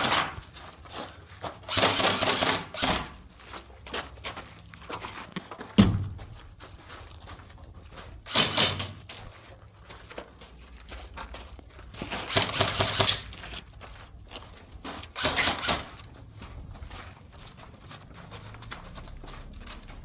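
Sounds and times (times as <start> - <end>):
airsoft rifle bursts: 1.6 - 3.2, 8.2 - 9.0, 12.2 - 13.4, 15.1 - 16.0.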